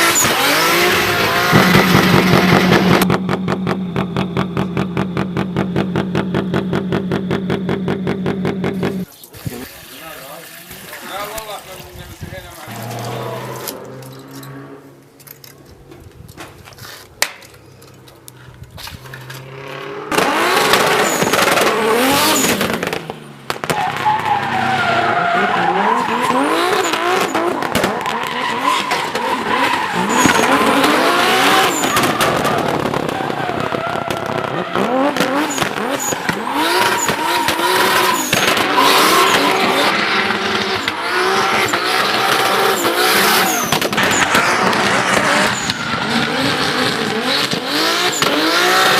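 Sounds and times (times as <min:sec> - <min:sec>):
car engine revving: 0:00.0 - 0:09.1, 0:12.7 - 0:15.1, 0:18.5 - 0:48.9
tyres squealing: 0:23.8 - 0:47.4.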